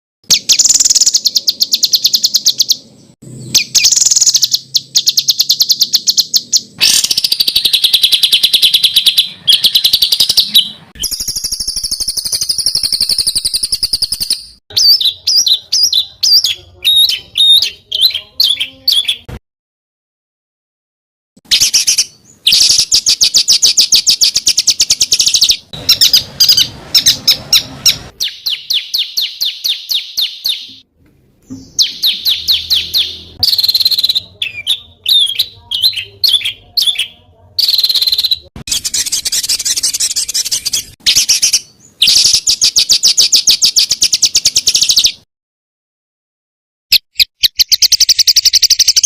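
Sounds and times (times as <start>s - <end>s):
songbirds singing rapid trills: 0.3s - 19.3s, 21.5s - 30.8s, 31.5s - 45.2s, 47.2s - 49.0s.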